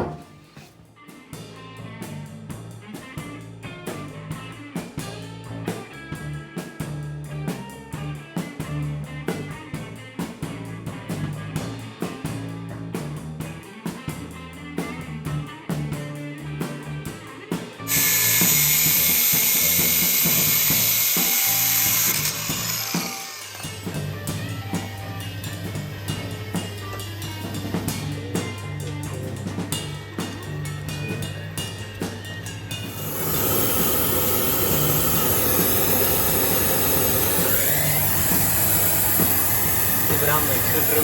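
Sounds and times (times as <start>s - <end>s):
high-pitched power tool: 17.8s - 28.2s, 32.6s - 41.0s
music with steady beat: 23.6s - 33.8s.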